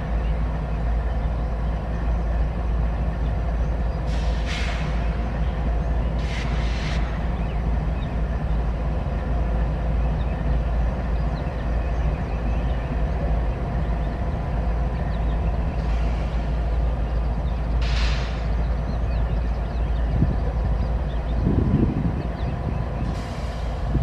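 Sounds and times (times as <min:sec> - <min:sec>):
freight train rumbling on rails: 0:00.0 - 0:24.0.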